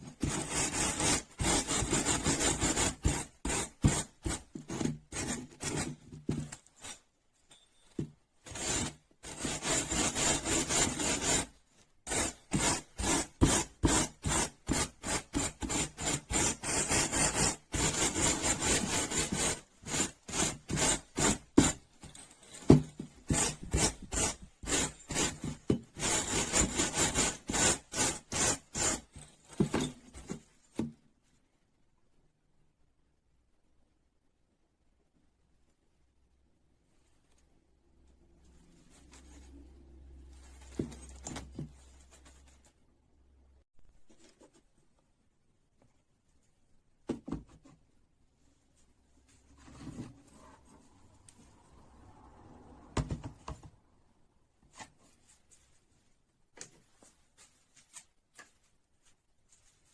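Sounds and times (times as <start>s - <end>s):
abrasive tool scrubbing rust off steel: 8.5s - 11.5s, 12.1s - 21.8s.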